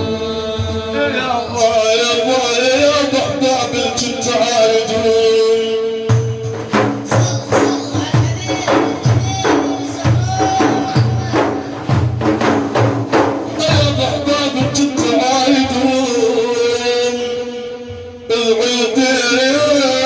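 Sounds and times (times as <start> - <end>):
frame drums: 6.1 - 16.6.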